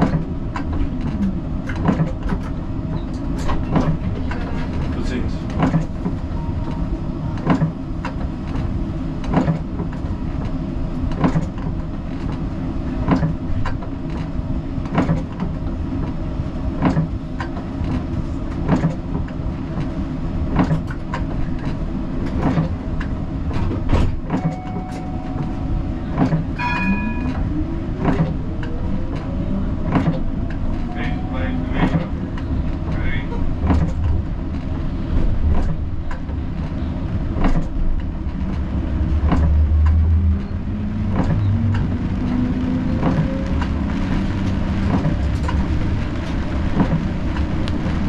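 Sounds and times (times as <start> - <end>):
tram rumbling: 0.0 - 48.0
high ringing tone: 24.4 - 27.6.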